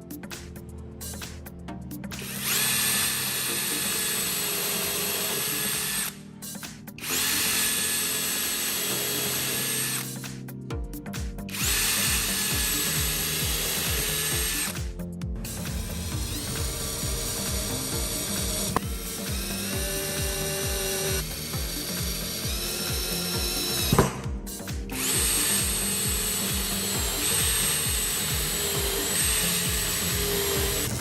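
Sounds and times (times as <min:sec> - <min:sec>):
background music: 0:00.0 - 0:31.0
electric power tool whining: 0:02.2 - 0:06.2, 0:07.0 - 0:10.3, 0:11.5 - 0:31.0.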